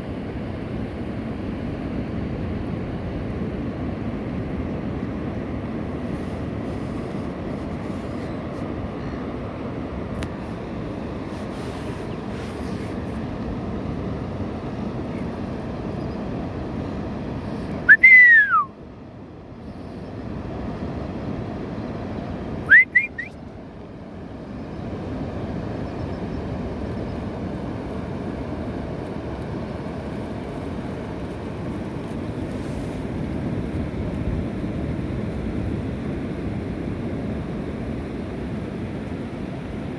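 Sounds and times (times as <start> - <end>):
gull calling: 17.9 - 18.7, 22.7 - 23.3.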